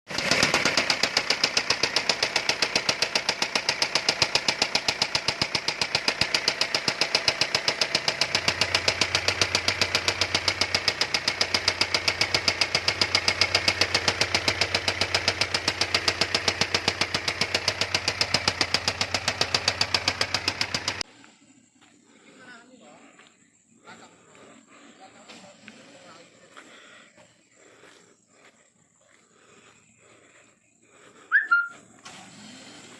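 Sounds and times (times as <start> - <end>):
diesel engine knocking: 0.1 - 21.0.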